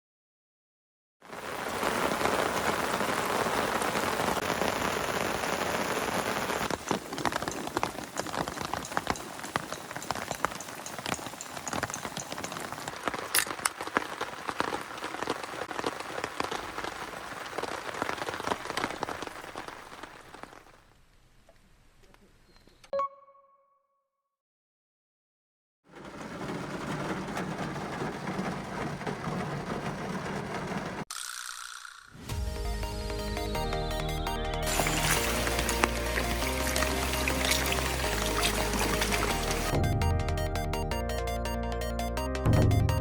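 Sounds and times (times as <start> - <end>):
heavy rain downpour: 1.2 - 20.9, 25.9 - 31.0, 32.6 - 40.2
water drops hitting close by: 34.7 - 39.8.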